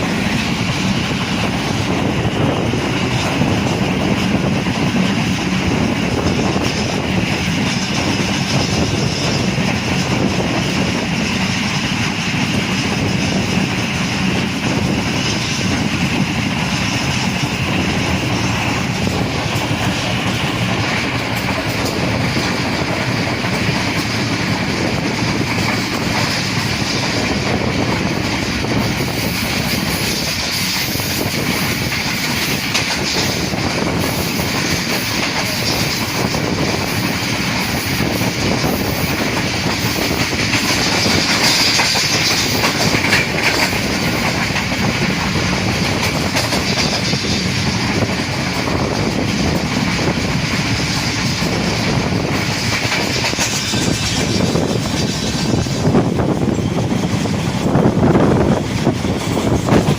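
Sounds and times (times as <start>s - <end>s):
clickety-clack of rail joints: 0.0s - 59.9s
train wheels rumbling on rails: 0.0s - 59.9s.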